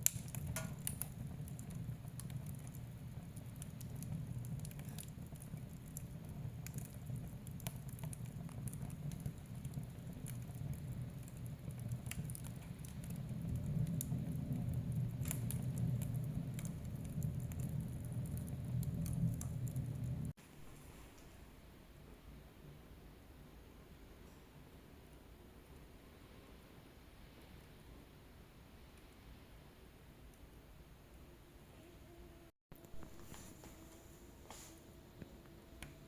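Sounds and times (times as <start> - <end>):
fire crackling and popping: 0.0 - 20.7, 34.5 - 36.0
low rumble of flames: 0.0 - 20.8
faint hiss: 19.4 - 36.0.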